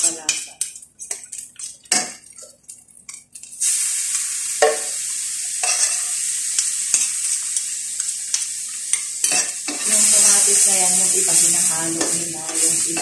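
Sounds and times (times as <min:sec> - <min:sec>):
food sizzling in oil: 0:00.0 - 0:13.0
metal spatula scraping a pan: 0:05.6 - 0:13.0.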